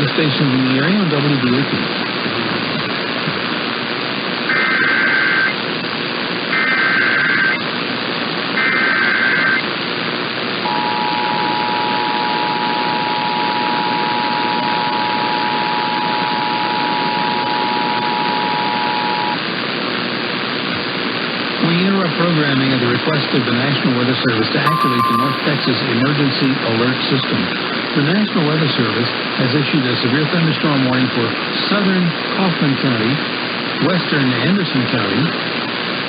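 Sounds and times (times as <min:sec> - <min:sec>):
radio hiss: 0:00.0 - 0:07.6
data tone bursts: 0:24.7 - 0:26.2
two-tone attention signal: 0:24.7 - 0:26.2.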